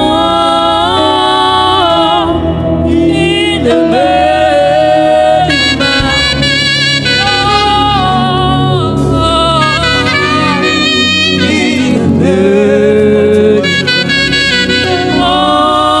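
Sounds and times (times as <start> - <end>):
band playing gospel music: 0.0 - 16.0
saxophone sliding melody: 5.2 - 12.6, 13.4 - 16.0.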